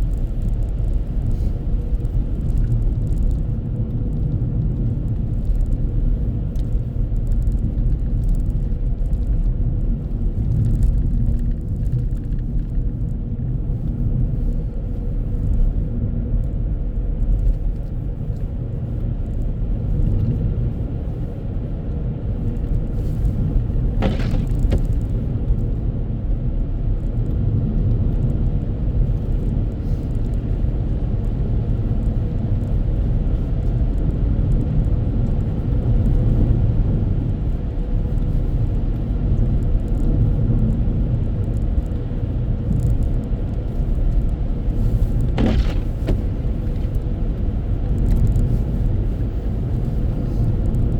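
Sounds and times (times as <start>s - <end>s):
car road and engine rumble: 0.0s - 50.9s.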